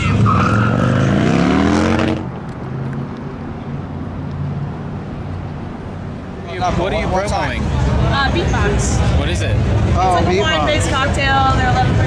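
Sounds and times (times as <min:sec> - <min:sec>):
motorcycle engine revving: 0:00.0 - 0:02.3.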